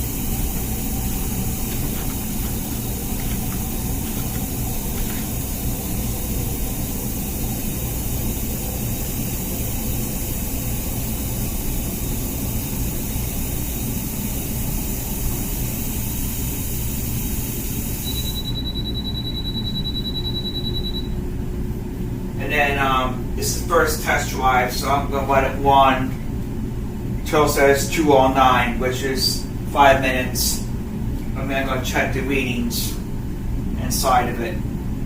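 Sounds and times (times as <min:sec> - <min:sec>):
dishwasher water spray: 0:00.0 - 0:18.2
pump hum: 0:00.0 - 0:21.1.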